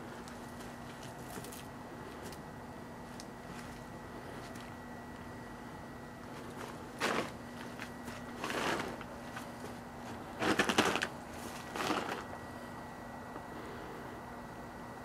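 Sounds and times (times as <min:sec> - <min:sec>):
microwave oven humming: 0:00.0 - 0:15.0
food crackling in microwave: 0:06.2 - 0:12.4.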